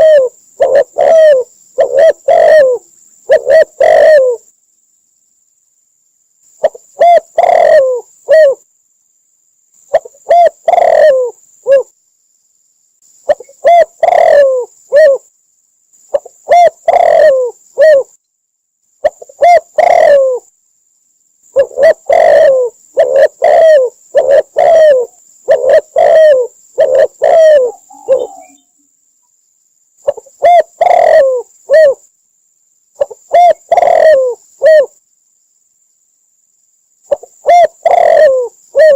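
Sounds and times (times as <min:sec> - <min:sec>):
dove cooing: 0:00.0 - 0:04.5, 0:06.6 - 0:08.6, 0:09.9 - 0:11.9, 0:13.3 - 0:15.3, 0:16.1 - 0:18.1, 0:19.0 - 0:20.5, 0:21.5 - 0:28.8, 0:30.0 - 0:32.0, 0:33.0 - 0:35.0, 0:37.1 - 0:38.9.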